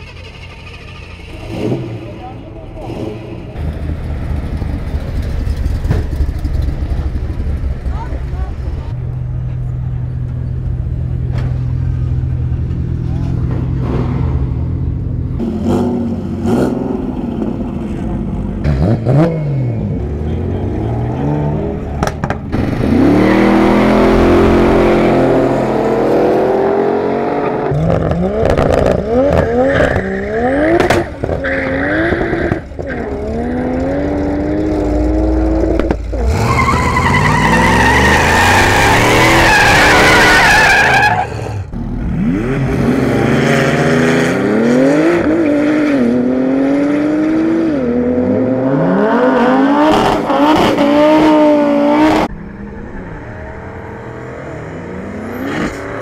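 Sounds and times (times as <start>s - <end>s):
tyre screech: 0.0s - 3.4s, 28.5s - 34.1s, 35.8s - 41.7s
racing car engines revving: 0.0s - 56.0s.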